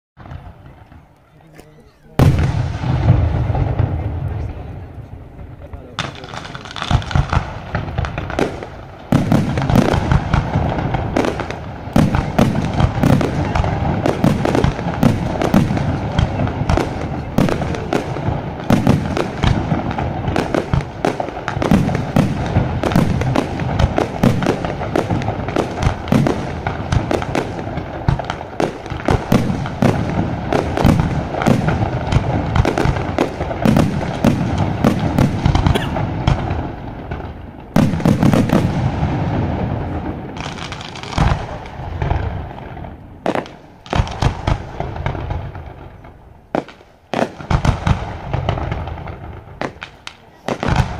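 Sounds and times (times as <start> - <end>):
fireworks bangs and crackles: 0.2 - 50.9.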